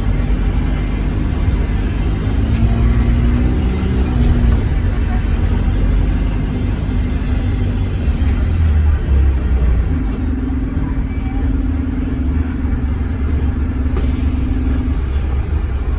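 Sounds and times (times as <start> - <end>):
bus diesel engine rumbling: 0.0 - 15.9
steady droning note: 0.0 - 15.9
hiss: 14.0 - 15.9.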